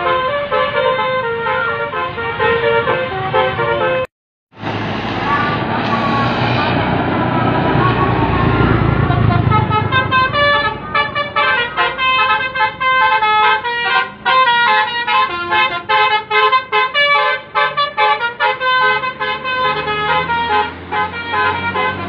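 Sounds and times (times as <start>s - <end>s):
bus musical horn melody: 0.0s - 22.0s
bus engine running low: 4.6s - 22.0s.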